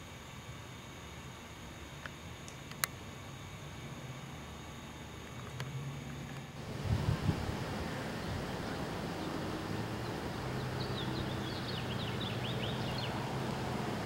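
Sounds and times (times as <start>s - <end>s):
steady low hum: 0.0s - 14.0s
small bird twittering: 8.0s - 13.5s.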